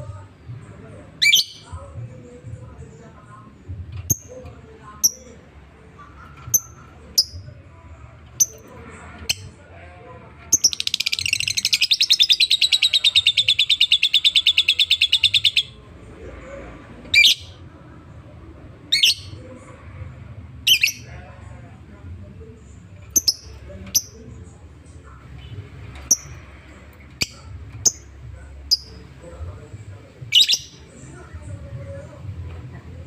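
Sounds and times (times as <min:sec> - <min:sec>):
lovebird chirping and trilling: 0:01.2 - 0:01.7, 0:10.6 - 0:15.8, 0:17.1 - 0:17.6, 0:18.9 - 0:19.4, 0:20.7 - 0:21.1, 0:26.0 - 0:26.4, 0:30.3 - 0:30.9.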